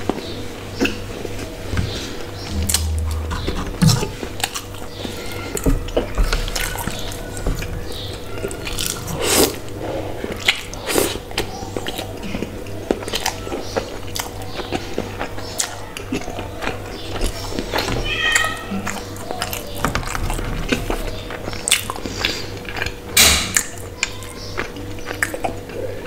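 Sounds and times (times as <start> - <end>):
person chewing food: 2.5 - 26.0.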